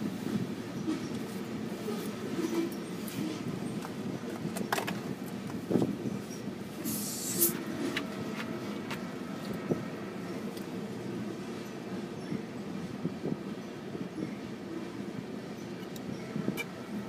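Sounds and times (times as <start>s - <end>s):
freight train rumble: 0.0s - 17.0s
short hiss: 6.8s - 7.6s.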